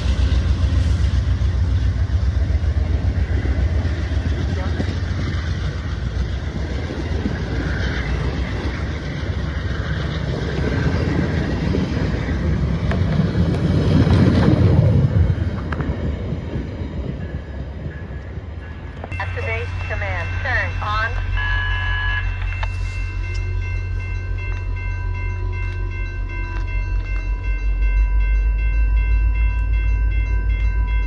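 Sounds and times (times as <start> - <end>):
train wheels rumbling on track: 0.0 - 31.0.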